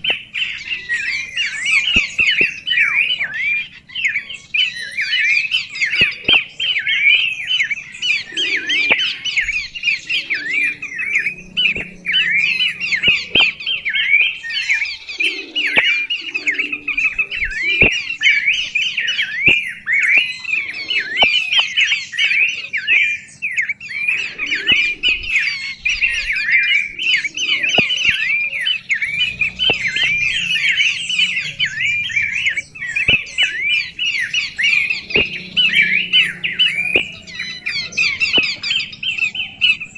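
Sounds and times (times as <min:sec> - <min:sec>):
sharp clicks: 0:00.0 - 0:03.9, 0:05.6 - 0:14.6, 0:27.1 - 0:38.9
songbird chattering song: 0:00.0 - 0:39.9.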